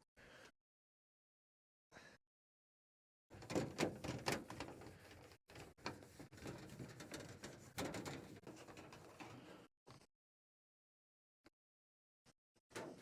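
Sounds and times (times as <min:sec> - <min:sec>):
rag scrubbing a door: 0:03.9 - 0:09.2.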